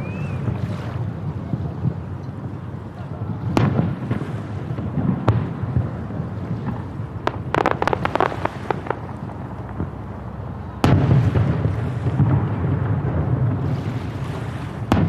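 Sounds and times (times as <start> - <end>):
low rumble: 5.9 - 13.2
crackling firework pops: 6.6 - 10.0, 13.6 - 15.0
firework boom: 7.2 - 10.0.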